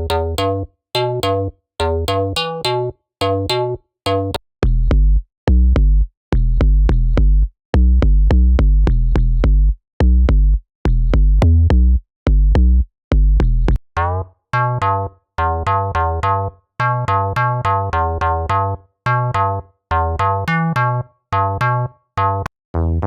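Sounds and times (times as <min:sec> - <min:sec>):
synthesizer riff of short notes: 0:00.0 - 0:04.4
deep synthesizer bass notes: 0:00.0 - 0:23.0.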